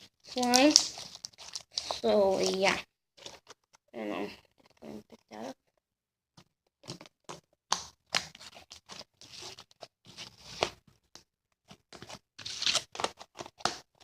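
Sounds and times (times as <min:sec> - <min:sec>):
slime worked by hand scratching: 0:00.0 - 0:03.7, 0:06.8 - 0:11.0, 0:11.6 - 0:14.0.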